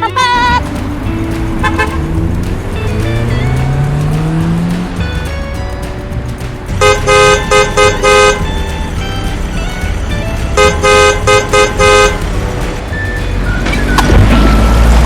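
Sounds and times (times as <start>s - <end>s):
vehicle horn honking: 0.0s - 0.6s, 1.6s - 2.2s, 6.8s - 9.2s, 10.6s - 12.6s.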